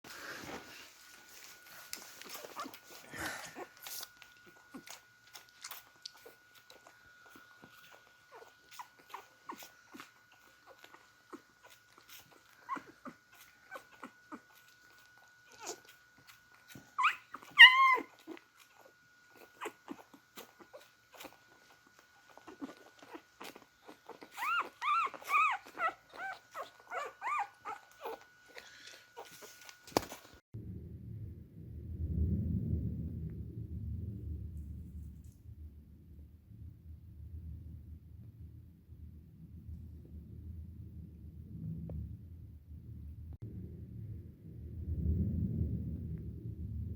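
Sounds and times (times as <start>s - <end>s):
high puppy whines and squeaks: 1.7s - 30.2s
puppies slurping milk: 1.9s - 29.8s
puppy whimpering cry: 2.3s - 29.7s.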